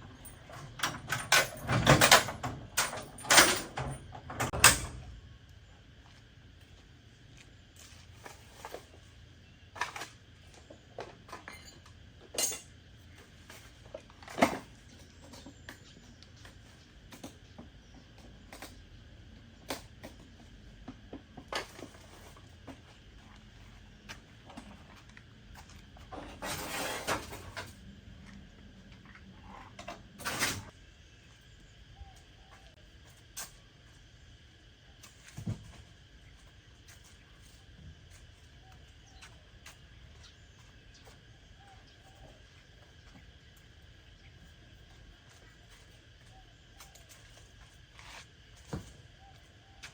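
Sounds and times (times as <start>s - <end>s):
metal tools clinking and knocking: 0.1s - 5.0s, 11.3s - 12.7s.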